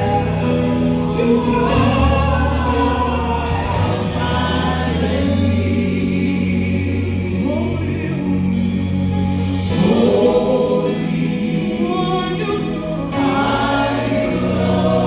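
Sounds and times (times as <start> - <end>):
choir singing gospel music: 0.0 - 15.0.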